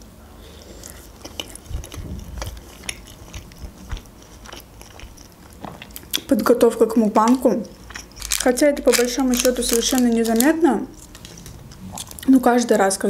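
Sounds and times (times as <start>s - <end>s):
person chewing food: 0.4s - 6.3s, 7.4s - 12.3s
soft low thumps: 1.7s - 2.6s.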